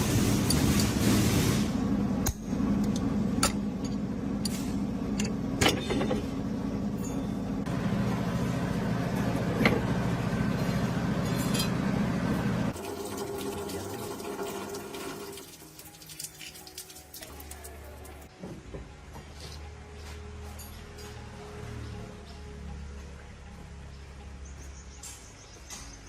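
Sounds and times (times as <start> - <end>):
truck engine running: 0.0 - 12.8.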